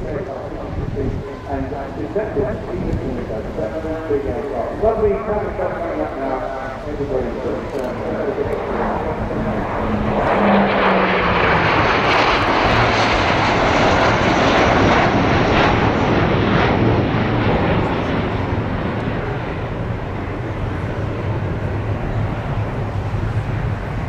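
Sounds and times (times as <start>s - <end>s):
jet aircraft flying past: 0.0s - 24.0s.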